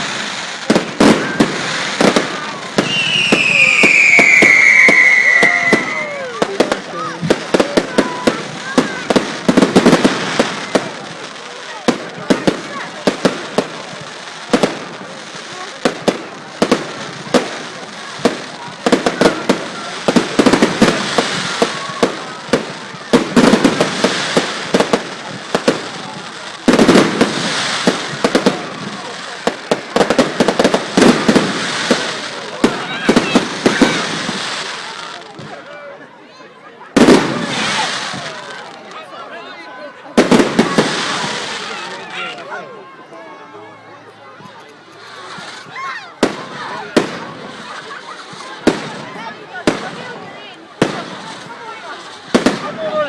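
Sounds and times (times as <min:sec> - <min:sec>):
fireworks crackling: 0:00.0 - 0:36.2, 0:36.8 - 0:53.0
falling firework whistle: 0:02.8 - 0:06.8.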